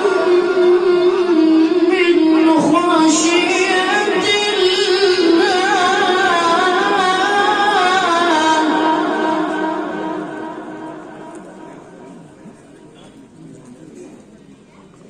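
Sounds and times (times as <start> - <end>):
child chanting melodically: 0.0 - 10.9.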